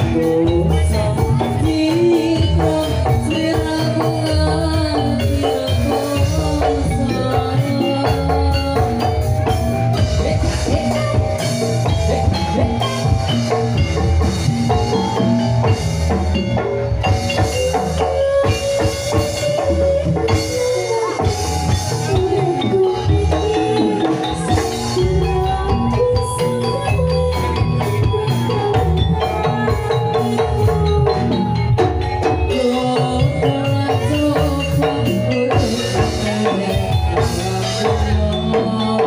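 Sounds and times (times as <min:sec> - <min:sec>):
mallet percussion melody: 0:00.0 - 0:39.0
steady drum beat: 0:00.0 - 0:39.0.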